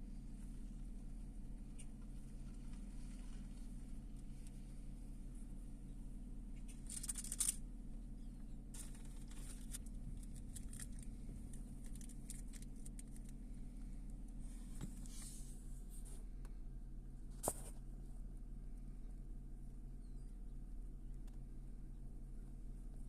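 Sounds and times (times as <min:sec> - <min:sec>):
faint rustles and ticks: 0:00.0 - 0:16.6
steady low hum: 0:00.0 - 0:23.0.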